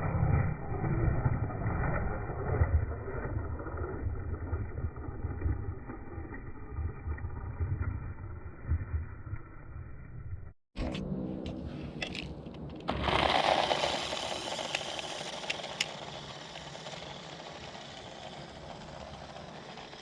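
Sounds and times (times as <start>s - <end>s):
rc truck motor whirring: 0.3s - 7.1s, 12.1s - 20.0s.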